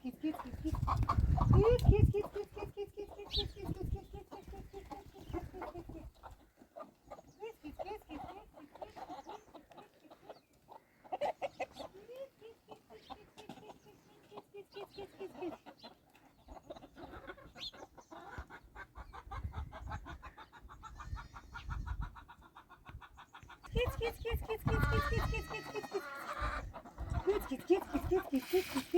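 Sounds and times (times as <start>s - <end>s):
chickens clucking: 0.0s - 28.9s.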